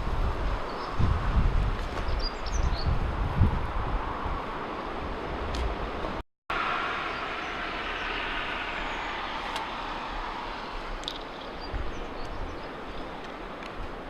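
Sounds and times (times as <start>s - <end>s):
passing vehicle rushing: 5.9s - 13.0s.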